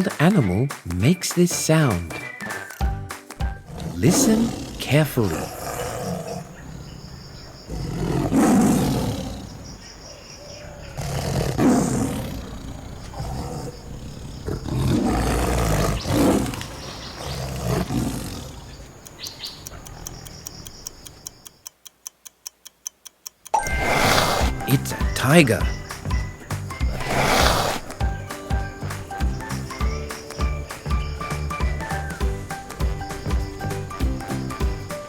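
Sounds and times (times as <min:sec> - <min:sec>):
tiger roaring and growling: 0:03.4 - 0:09.8, 0:10.4 - 0:19.1, 0:23.6 - 0:28.3
clock ticking quickly: 0:19.0 - 0:26.2.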